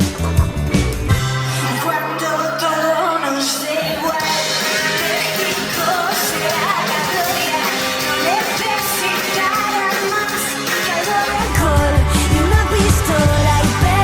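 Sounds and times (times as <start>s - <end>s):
heavy bass: 0.0s - 2.4s, 11.0s - 14.0s
live band music: 0.0s - 14.0s.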